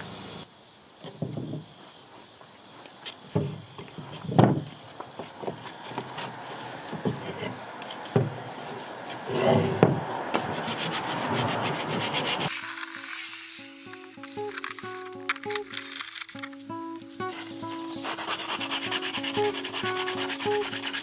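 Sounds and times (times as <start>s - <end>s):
wood knocking: 1.0s - 1.6s, 3.3s - 6.3s, 6.9s - 8.5s, 9.2s - 10.5s
hand sanding wood: 8.6s - 16.4s, 17.2s - 21.0s
plucked background music: 12.5s - 21.0s.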